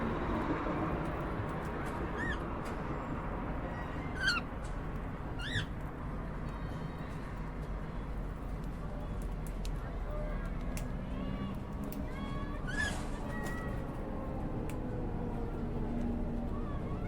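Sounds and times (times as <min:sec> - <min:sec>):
faint small clicks: 0:08.6 - 0:09.8, 0:10.4 - 0:11.0.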